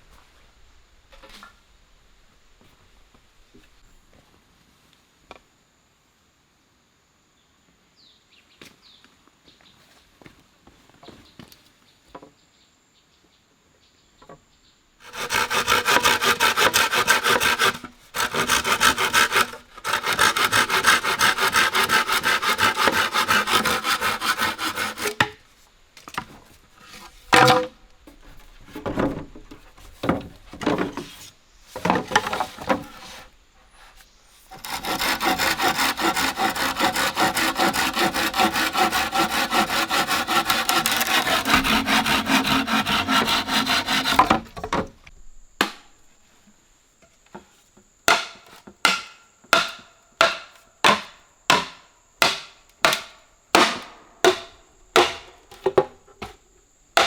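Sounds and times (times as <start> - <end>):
hand saw cutting wood: 15.0 - 25.4, 30.0 - 33.3, 34.4 - 44.6, 48.9 - 55.2
knocks and handling of wood: 15.1 - 33.3, 39.5 - 45.9, 47.0 - 56.4.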